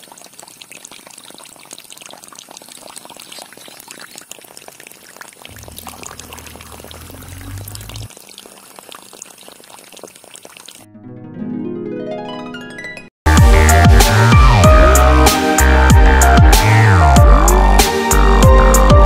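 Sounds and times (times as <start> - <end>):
water pouring and splashing: 0.0 - 10.9
low hum: 5.5 - 8.1.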